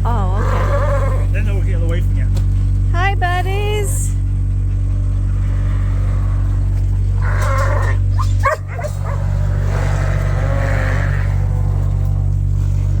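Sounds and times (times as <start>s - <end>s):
low mechanical hum: 0.0s - 13.0s
animals calling: 0.1s - 1.7s, 4.2s - 13.0s.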